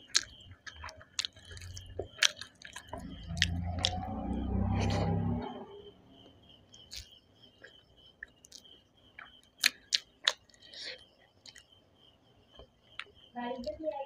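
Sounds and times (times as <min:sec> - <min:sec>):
close-up chewing: 0:00.0 - 0:04.1, 0:06.8 - 0:11.7
wet mouth clicks and lip smacks: 0:08.4 - 0:10.5.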